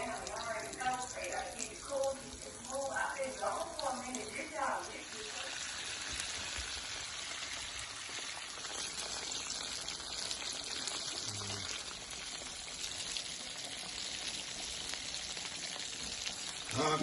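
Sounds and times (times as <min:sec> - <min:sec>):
oil sizzling in a pan: 0:00.0 - 0:17.0.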